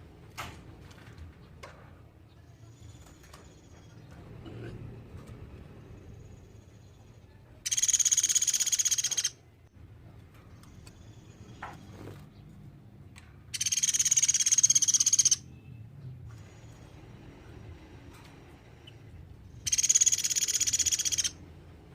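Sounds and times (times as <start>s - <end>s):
bird trilling high notes: 7.6s - 9.4s, 13.6s - 15.5s, 19.7s - 21.4s.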